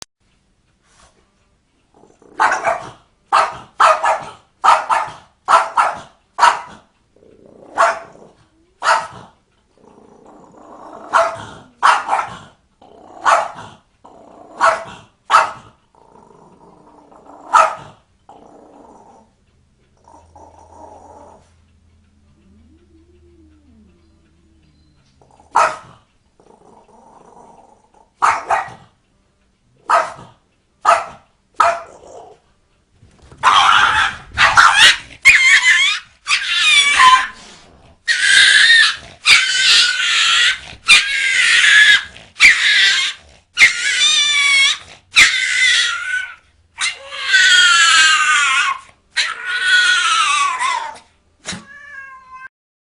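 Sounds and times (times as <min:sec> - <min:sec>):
dog barking: 0:02.4 - 0:06.8, 0:07.8 - 0:08.2, 0:08.8 - 0:09.3, 0:11.1 - 0:12.5, 0:13.2 - 0:13.8, 0:14.6 - 0:15.7, 0:17.5 - 0:18.0, 0:25.5 - 0:26.0, 0:28.2 - 0:28.9, 0:29.8 - 0:32.0, 0:33.4 - 0:37.3
high-pitched wavering cries: 0:22.4 - 0:25.3, 0:33.5 - 0:37.4.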